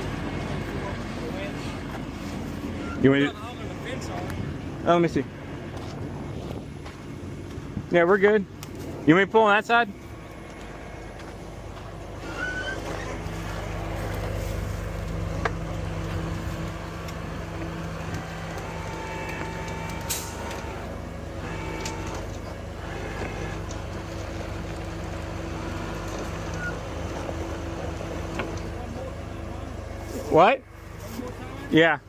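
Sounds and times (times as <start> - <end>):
truck engine running: 0.0 - 32.0
short squeaks: 2.7 - 3.1, 12.2 - 14.3, 25.9 - 26.9.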